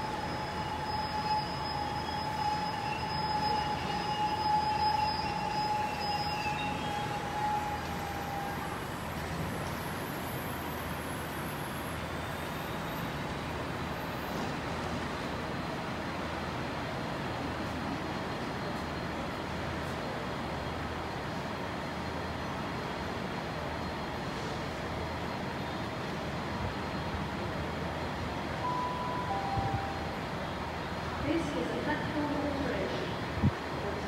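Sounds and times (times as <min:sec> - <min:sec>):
train rumble: 0:00.0 - 0:34.0
high whine: 0:28.6 - 0:30.7.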